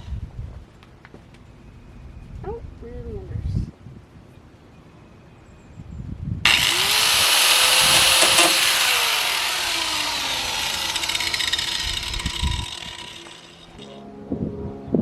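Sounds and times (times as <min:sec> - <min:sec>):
angle grinder cutting metal: 0:06.5 - 0:14.0.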